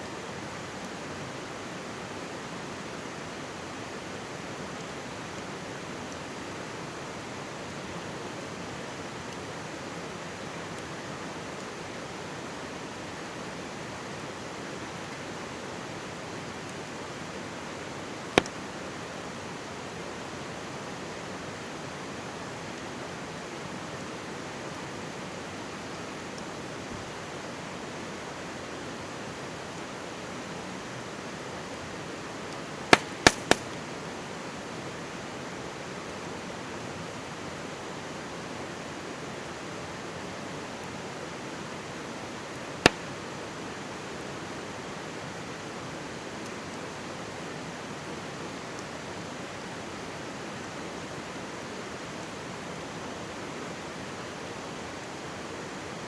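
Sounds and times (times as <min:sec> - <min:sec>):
campfire popping: 0:32.9 - 0:33.8, 0:42.9 - 0:43.2.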